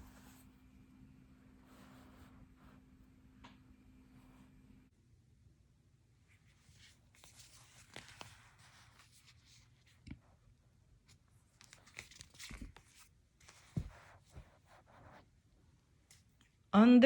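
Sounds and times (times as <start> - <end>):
pages rustling: 6.4 - 10.3, 11.1 - 15.2.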